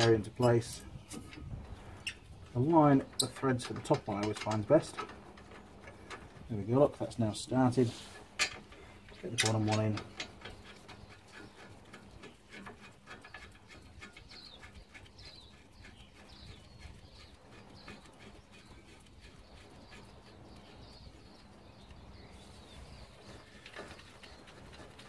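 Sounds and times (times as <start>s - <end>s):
small bird chirping: 2.0s - 3.4s, 8.7s - 25.0s.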